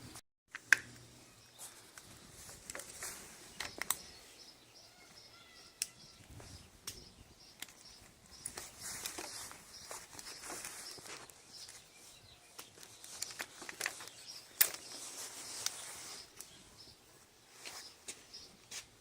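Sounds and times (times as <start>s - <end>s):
faint bird chirps: 3.4s - 13.3s.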